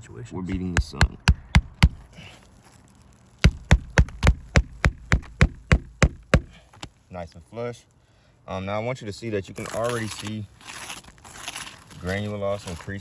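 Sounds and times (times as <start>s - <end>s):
hammer blows on roofing nail: 0.5s - 2.1s, 3.4s - 6.7s.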